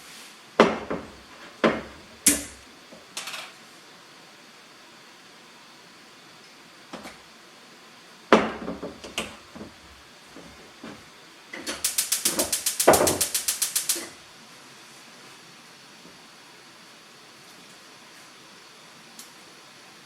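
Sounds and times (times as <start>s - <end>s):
rapid mechanical clicks: 11.7s - 14.1s.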